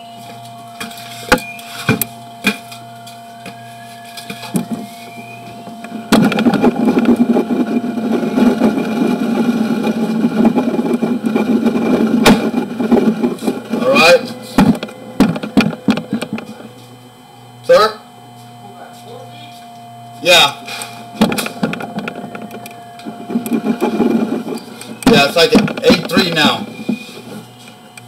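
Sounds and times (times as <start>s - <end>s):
faint electronic tone: 0.0s - 28.0s
loud steady machine noise: 0.0s - 28.0s
sharp clicks and knocks: 5.6s - 13.8s, 14.5s - 16.9s, 20.7s - 27.0s.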